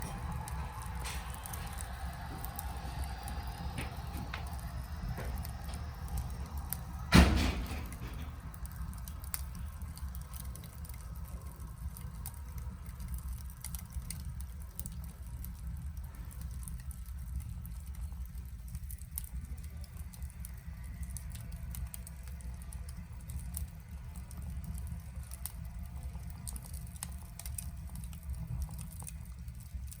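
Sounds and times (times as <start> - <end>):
fire crackling and popping: 0.0 - 30.0
wood fire rumbling: 0.0 - 30.0
loud knock: 7.1 - 8.3.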